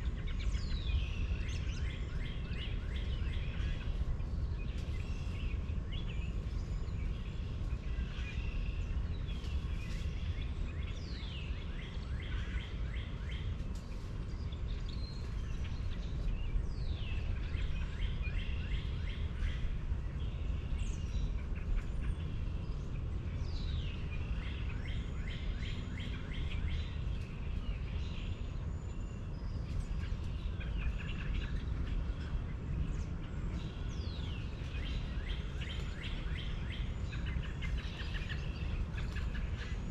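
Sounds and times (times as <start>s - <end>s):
birds singing and chirping: 0.0s - 39.9s
steady low rumble: 0.0s - 39.9s.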